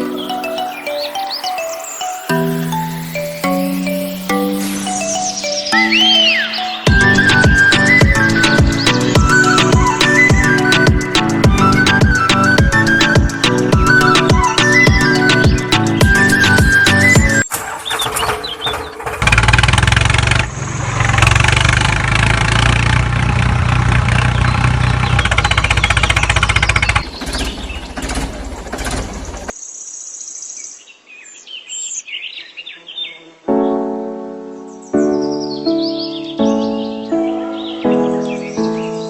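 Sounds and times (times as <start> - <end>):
tune with repeated notes: 0.0 - 17.5, 33.5 - 39.0
birds chirping: 0.0 - 19.2, 24.0 - 39.0
engine-like rumble: 18.6 - 29.5.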